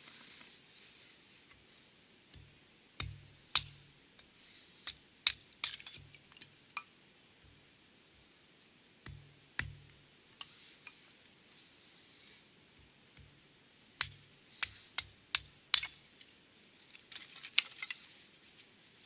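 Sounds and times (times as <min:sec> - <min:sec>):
firewood crackling: 0:00.0 - 0:06.8, 0:14.0 - 0:19.0
soft fire hiss: 0:00.0 - 0:19.0.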